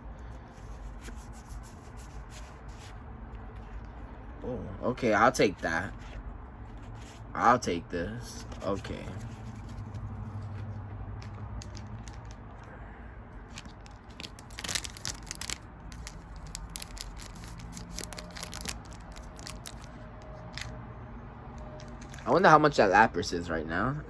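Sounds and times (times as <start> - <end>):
crinkling of foil wrappers: 8.6 - 12.7, 13.4 - 20.7, 21.8 - 22.3.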